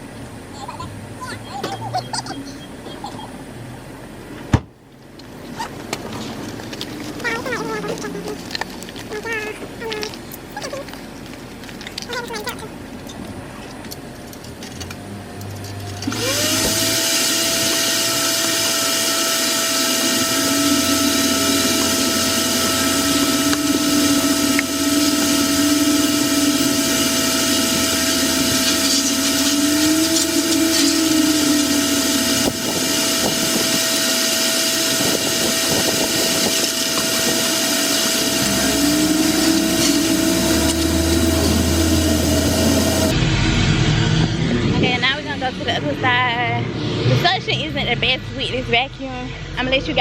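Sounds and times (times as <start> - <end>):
vacuum cleaner motor whining: 5.5 - 12.8, 13.8 - 46.0.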